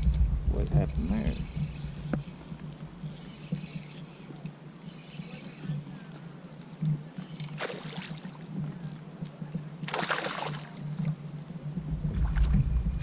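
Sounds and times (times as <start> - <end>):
low steady hum: 0.0 - 13.0
water splashing: 7.4 - 8.4, 9.9 - 10.8.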